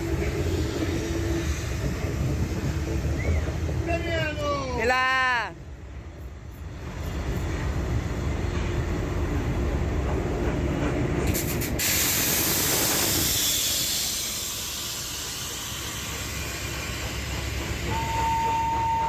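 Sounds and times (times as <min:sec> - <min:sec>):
loud hiss of steam: 0:00.0 - 0:03.5, 0:11.3 - 0:18.7
steam train rumbling on track: 0:00.0 - 0:19.0.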